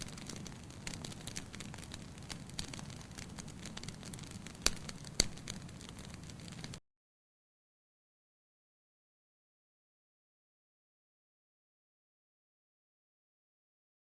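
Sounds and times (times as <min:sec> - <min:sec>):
wood fire crackling: 0:00.0 - 0:06.8.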